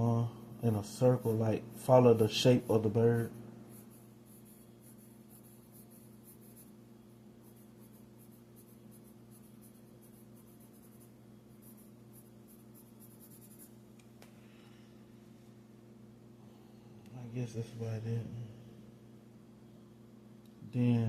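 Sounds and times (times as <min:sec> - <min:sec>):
low electrical hum: 0:00.0 - 0:21.0
pencil scratching on paper: 0:01.0 - 0:06.8, 0:07.4 - 0:13.8.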